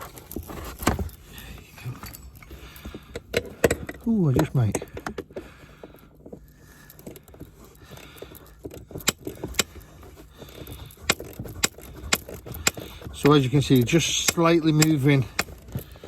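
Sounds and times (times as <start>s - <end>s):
ratchet wrench clicking: 6.9s - 16.0s.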